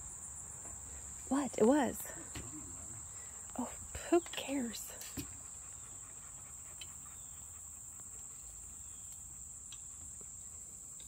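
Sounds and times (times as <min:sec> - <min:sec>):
insect chorus drone: 0:00.0 - 0:11.0
faint ticks: 0:06.7 - 0:07.0.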